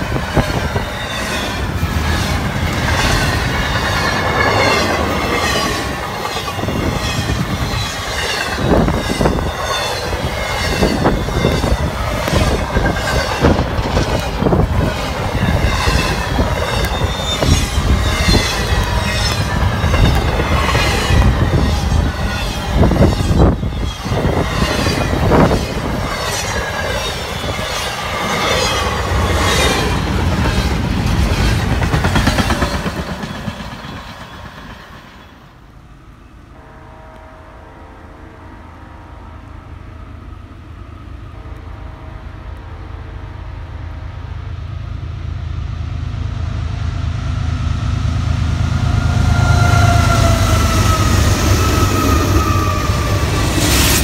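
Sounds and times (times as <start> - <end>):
train wheels clattering: 0.0 - 35.4
locomotive engine rumble: 0.0 - 36.2, 39.8 - 54.0
train horn blasts: 36.3 - 44.6, 48.6 - 54.0.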